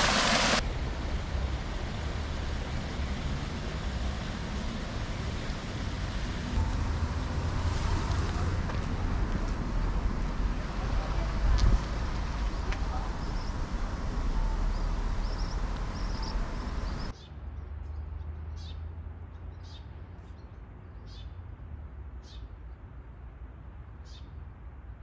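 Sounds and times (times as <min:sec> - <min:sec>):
wind noise on microphone: 0:11.2 - 0:17.1.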